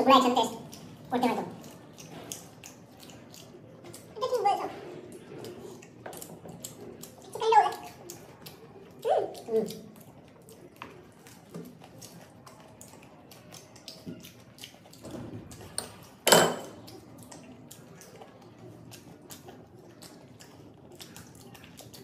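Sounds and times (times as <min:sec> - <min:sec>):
wet mouth clicks while chewing: 0:00.0 - 0:22.0.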